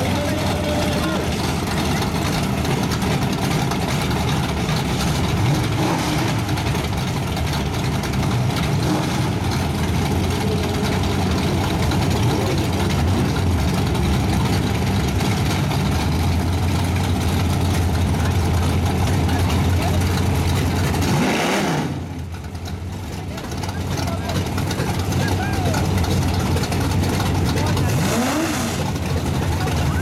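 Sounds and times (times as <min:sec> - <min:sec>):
race car engines idling: 0:00.0 - 0:30.0.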